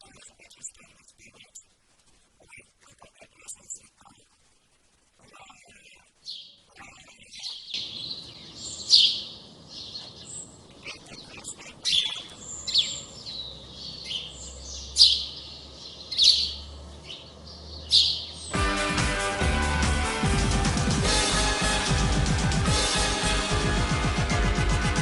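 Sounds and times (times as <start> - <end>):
songbirds chirping: 0.0 - 4.3, 5.2 - 19.1
faint background hiss: 0.0 - 18.6.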